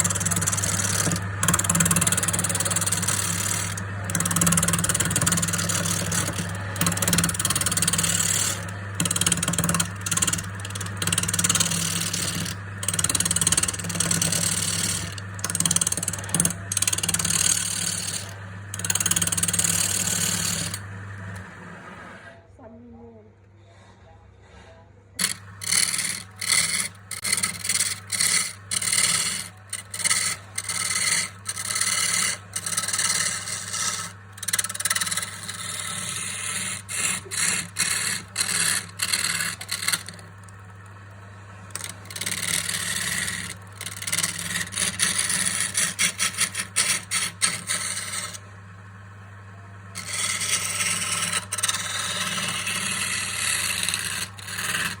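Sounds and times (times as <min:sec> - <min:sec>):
hand scraping wood: 0:00.0 - 0:22.1, 0:25.2 - 0:40.9, 0:41.6 - 0:48.5, 0:50.0 - 0:55.0
steady low hum: 0:00.0 - 0:23.4, 0:25.1 - 0:55.0.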